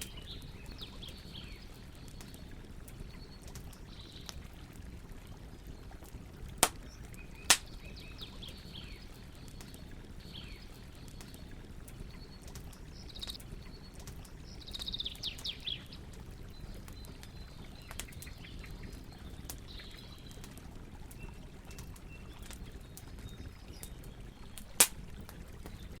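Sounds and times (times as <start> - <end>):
birds chirping: 0.0 - 26.0
campfire crackling: 0.0 - 26.0
loud sharp pops: 7.5 - 7.7.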